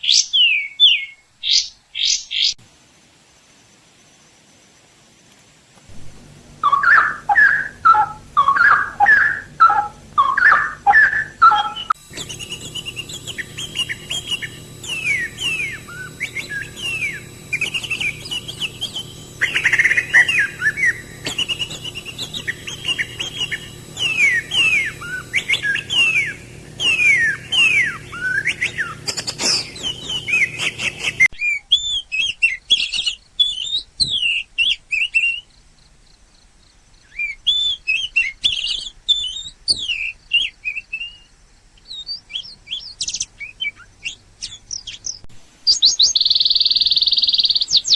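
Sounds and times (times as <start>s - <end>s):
low background hum and hiss: 2.6s - 31.3s
small birds chirping: 5.9s - 31.3s.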